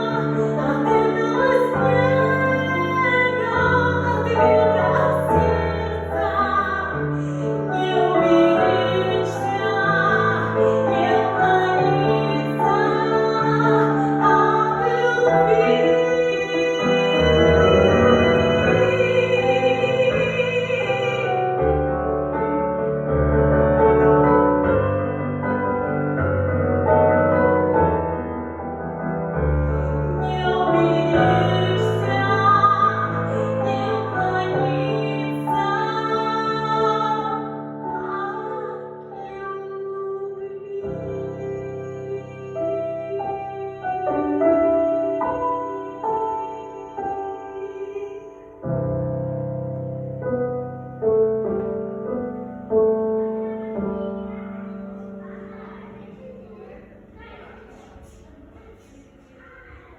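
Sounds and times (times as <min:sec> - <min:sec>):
woman singing an aria: 0:00.0 - 0:21.6, 0:30.1 - 0:48.6
piano accompaniment: 0:00.0 - 0:59.9.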